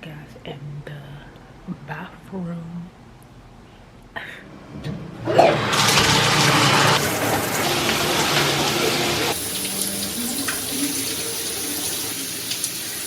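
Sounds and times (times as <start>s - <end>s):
water gushing in a bathroom: 5.2s - 13.0s.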